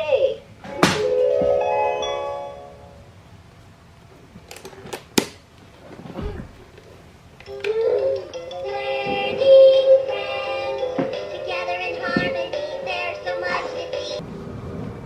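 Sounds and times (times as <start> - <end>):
dull thud: 6.0 - 6.8.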